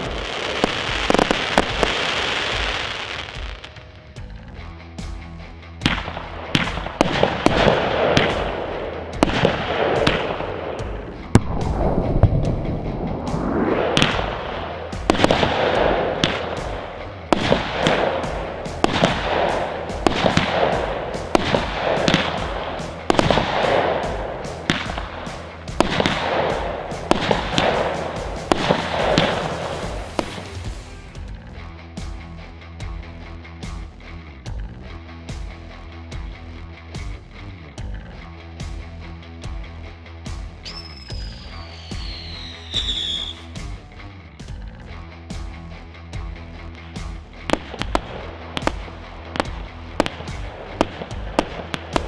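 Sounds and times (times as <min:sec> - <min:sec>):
firework launches: 0:00.0 - 0:03.7, 0:09.2 - 0:31.0
firework bursts overhead: 0:00.0 - 0:03.8, 0:05.8 - 0:31.0, 0:40.7 - 0:43.7, 0:47.5 - 0:52.0.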